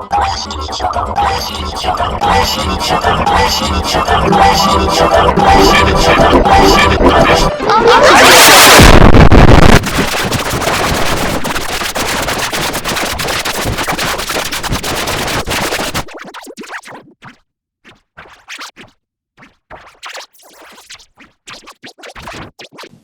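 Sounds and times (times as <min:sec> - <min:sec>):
distorted noise: 0:00.0 - 0:16.2
rapid stuttering clicks: 0:00.0 - 0:16.4.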